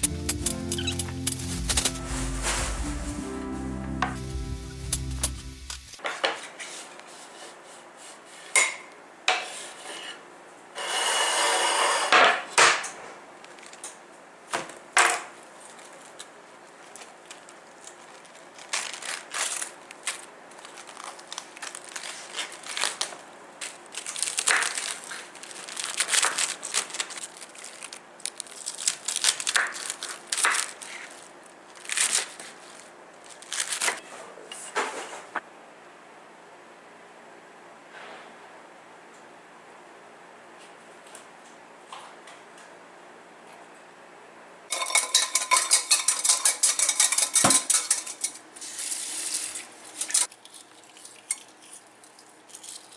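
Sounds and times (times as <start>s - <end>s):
brief rushing hiss: 0.0s - 6.0s
dishes and utensils clinking: 44.7s - 50.3s.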